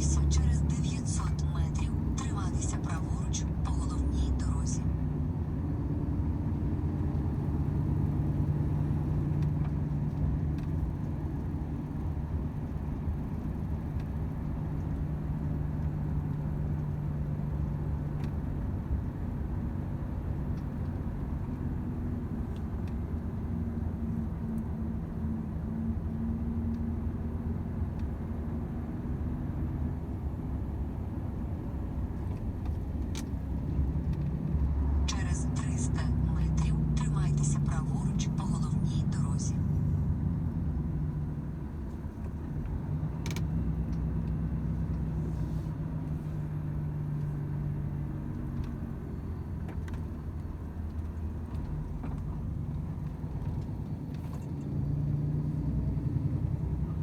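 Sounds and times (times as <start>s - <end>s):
truck diesel engine droning: 0.0s - 9.0s, 34.8s - 41.1s
road and tyre noise: 0.0s - 57.0s.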